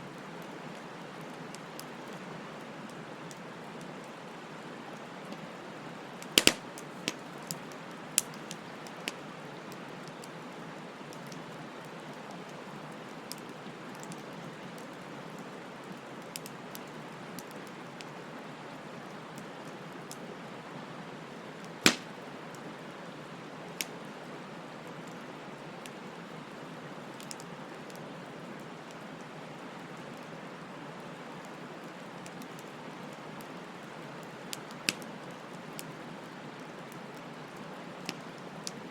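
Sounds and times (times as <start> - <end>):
bonfire flames hissing: 0.2 - 13.6, 21.4 - 24.2
fire crackling pops: 6.2 - 9.2, 21.8 - 22.6, 34.5 - 35.1.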